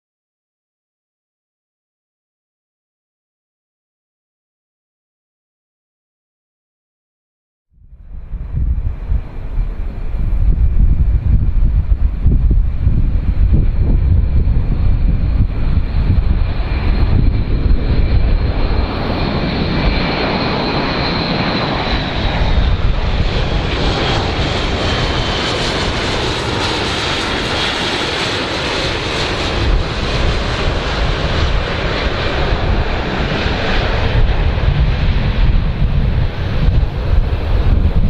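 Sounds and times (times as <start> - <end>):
airplane engines running: 7.8 - 38.0.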